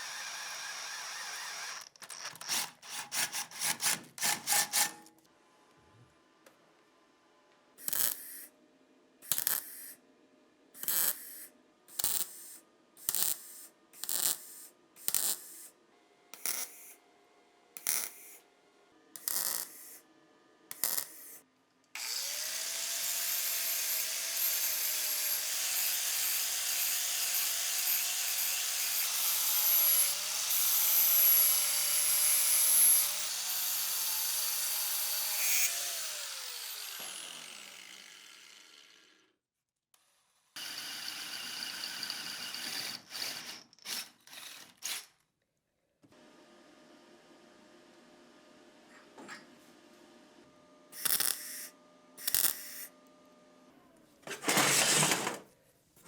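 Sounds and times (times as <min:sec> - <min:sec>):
hand tool rasping strokes: 0:00.0 - 0:05.1
power tool whining: 0:00.0 - 0:05.1, 0:22.0 - 0:39.3.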